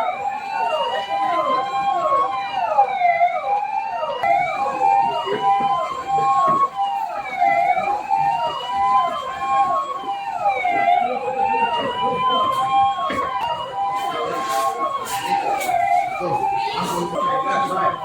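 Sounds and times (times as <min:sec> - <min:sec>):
siren slow wail: 0:00.0 - 0:18.0
siren quick sweeps: 0:12.4 - 0:18.0.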